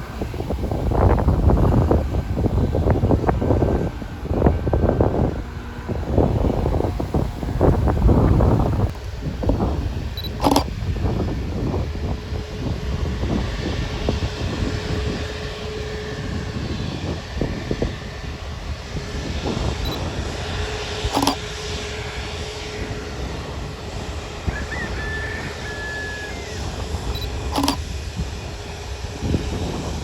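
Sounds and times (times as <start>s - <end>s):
jet engines running: 0.0s - 30.0s
sharp click: 10.3s - 10.7s, 21.1s - 21.4s, 27.5s - 27.8s.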